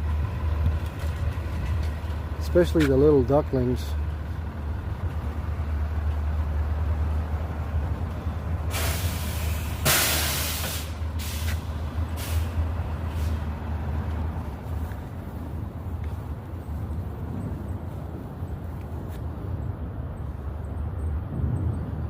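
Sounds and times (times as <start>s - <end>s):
motor traffic rumble: 0.0s - 22.0s
sharp hisses: 8.7s - 11.6s.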